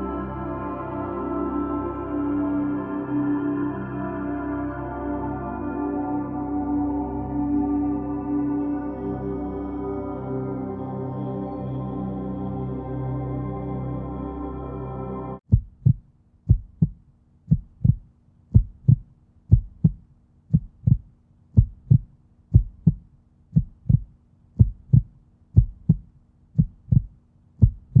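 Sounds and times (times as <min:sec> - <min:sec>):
slow heartbeat: 0:15.5 - 0:28.0.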